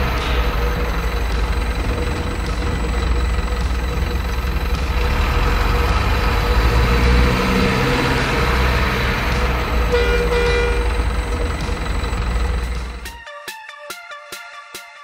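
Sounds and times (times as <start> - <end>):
truck engine running: 0.0 - 13.2
short horn toot: 9.9 - 10.8.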